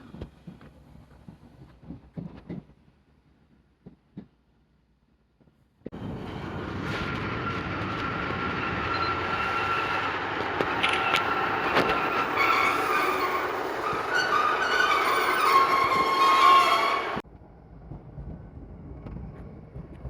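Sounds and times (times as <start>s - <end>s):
train running on rails: 0.0s - 3.3s, 5.9s - 20.0s
high squealing tones: 6.3s - 17.2s.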